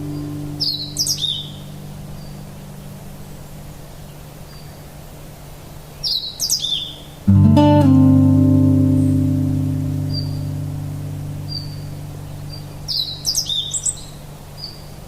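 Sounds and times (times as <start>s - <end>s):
acoustic guitar notes: 0.0s - 3.7s, 7.2s - 13.6s
steady low hum: 0.0s - 4.2s, 7.3s - 13.3s
songbird chirping: 0.0s - 5.0s, 5.9s - 15.0s.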